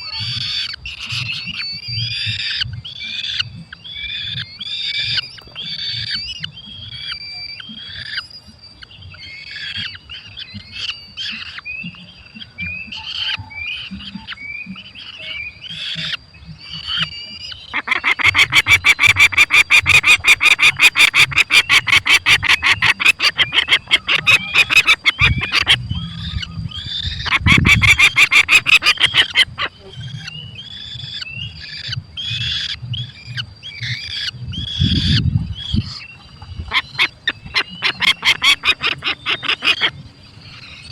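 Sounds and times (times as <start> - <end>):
falcons calling: 9.0 - 40.9.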